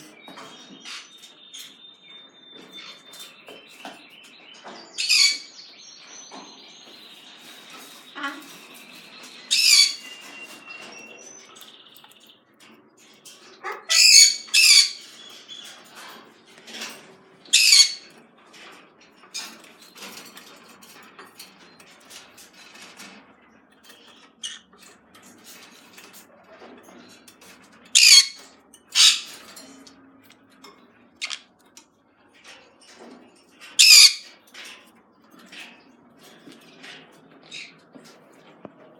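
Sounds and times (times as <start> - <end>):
birds squawking harshly: 5.0 - 5.6, 7.5 - 10.3, 13.6 - 15.4, 17.5 - 18.1, 24.4 - 24.7, 28.0 - 29.4, 31.2 - 31.5, 33.8 - 34.3.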